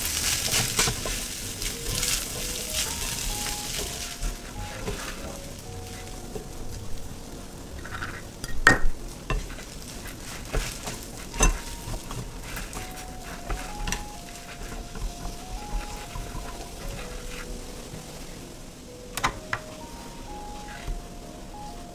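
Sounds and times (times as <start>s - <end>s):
utensil scraping and knocking pan: 0.0s - 6.6s, 7.8s - 18.2s
food sizzling in a frying pan: 0.0s - 21.9s.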